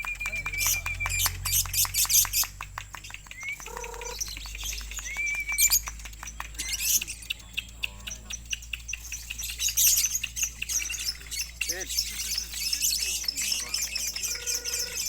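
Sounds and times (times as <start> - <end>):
lovebird chirping: 3.2 - 15.0
high shrill bird trilling: 3.4 - 5.9, 6.6 - 15.0.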